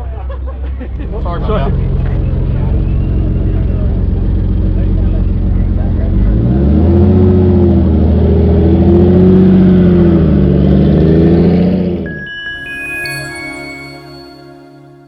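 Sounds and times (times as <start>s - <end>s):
car engine revving: 0.9s - 12.0s.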